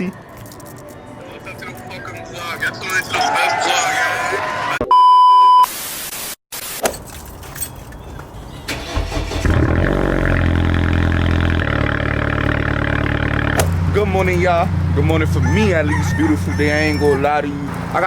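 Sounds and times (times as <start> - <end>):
loud high beep: 4.8 - 5.7
car engine starting and running: 6.9 - 18.0.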